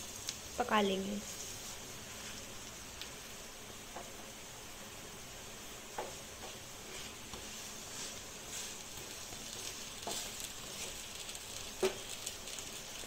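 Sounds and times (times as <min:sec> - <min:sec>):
pancake sizzling in oil: 0:00.0 - 0:13.0
spatula scraping a pan: 0:06.0 - 0:12.2.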